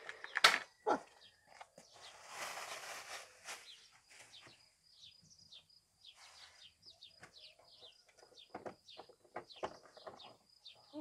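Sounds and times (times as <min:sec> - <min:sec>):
small birds chirping: 0:00.0 - 0:11.0
rustle: 0:01.8 - 0:04.6.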